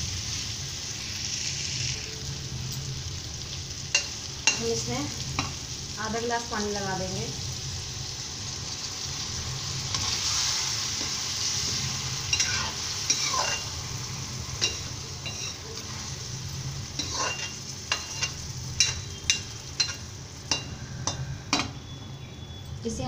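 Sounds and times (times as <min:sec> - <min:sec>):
vegetables sizzling in hot oil: 0:00.0 - 0:23.0
metal spoon scraping pan: 0:12.2 - 0:13.8, 0:14.6 - 0:16.1, 0:17.0 - 0:21.7.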